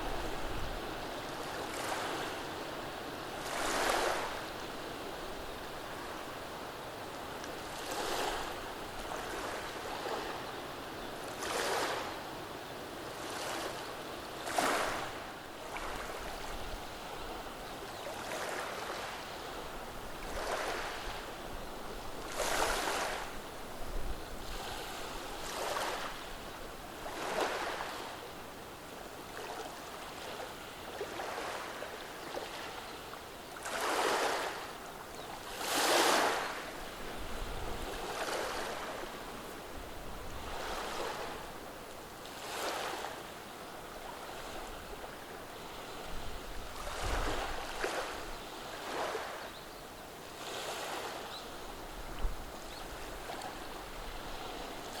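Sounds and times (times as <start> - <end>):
waves washing over stones: 14.4 - 16.7, 22.2 - 23.4, 33.6 - 34.7, 35.4 - 39.4.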